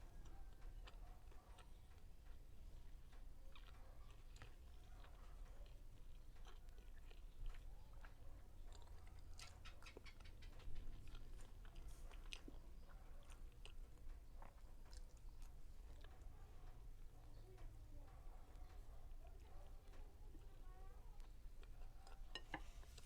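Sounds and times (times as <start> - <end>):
wet chewing mouth clicks: 3.0 - 16.3.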